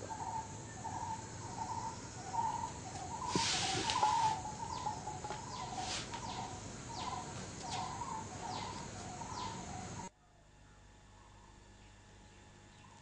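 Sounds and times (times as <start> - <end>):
high downward-sliding bird calls: 0.0 - 10.1.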